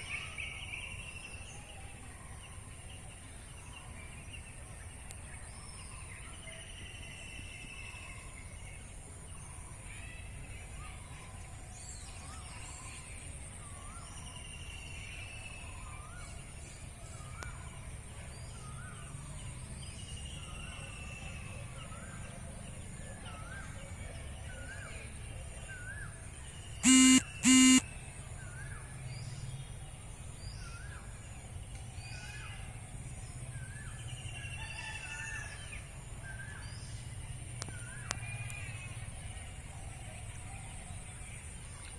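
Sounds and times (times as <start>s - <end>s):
high-pitched drone: 26.8s - 27.8s
loud short honks: 26.8s - 27.8s.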